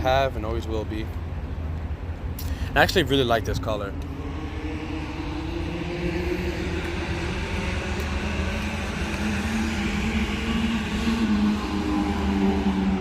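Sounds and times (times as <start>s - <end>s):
car engine running: 3.6s - 13.0s.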